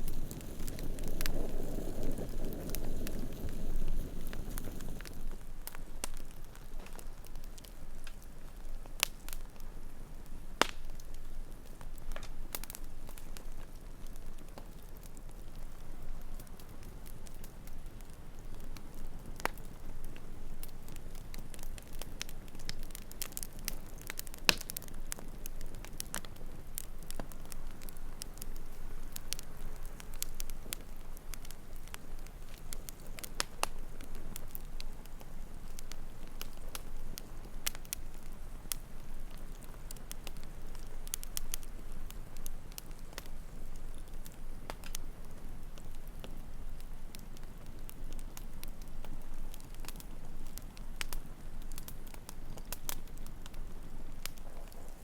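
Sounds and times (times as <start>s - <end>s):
sharp fire pops: 0.0s - 8.2s, 18.5s - 45.1s
campfire crackling: 0.0s - 55.0s.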